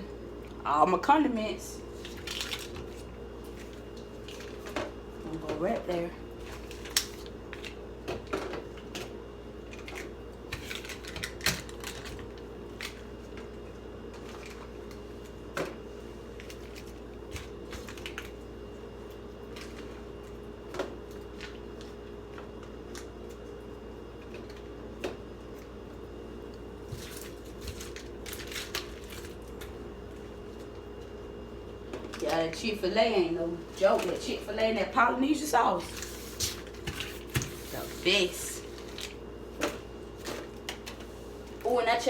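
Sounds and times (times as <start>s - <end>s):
refrigerator hum: 0.0s - 42.0s.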